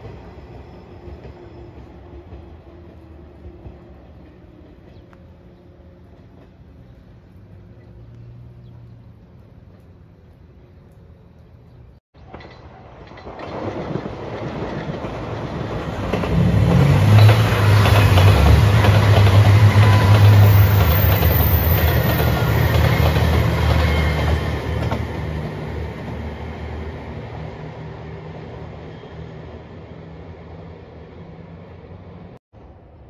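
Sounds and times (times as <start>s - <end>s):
train engine hum: 0.0s - 33.0s
wheels clattering over rails: 12.2s - 26.2s.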